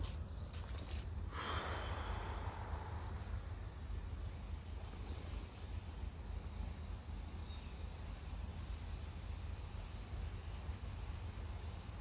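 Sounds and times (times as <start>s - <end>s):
low outdoor rumble: 0.0s - 12.0s
small birds chirping: 4.6s - 12.0s.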